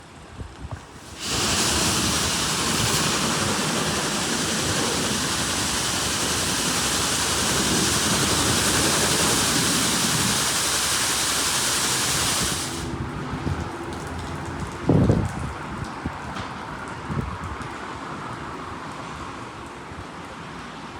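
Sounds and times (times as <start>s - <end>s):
car wash spraying water: 0.8s - 14.6s.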